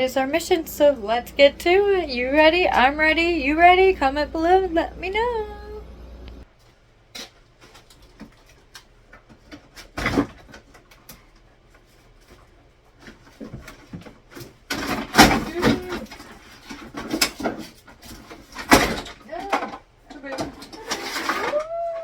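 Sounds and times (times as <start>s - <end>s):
household items knocking and clattering: 13.0s - 22.0s.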